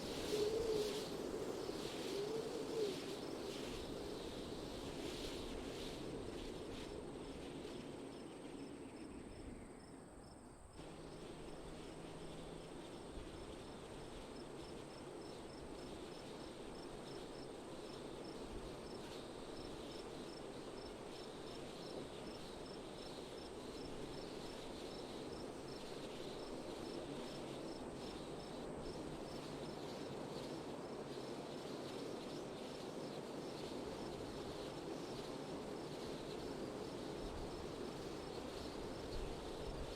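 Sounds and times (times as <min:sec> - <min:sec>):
wind blowing: 0:00.0 - 0:08.8
crickets chirping: 0:00.0 - 0:39.9.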